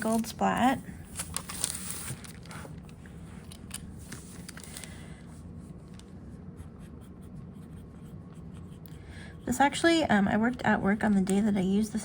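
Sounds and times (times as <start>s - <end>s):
low steady hum: 0.0s - 12.0s
soft paper scrapes: 1.1s - 3.4s.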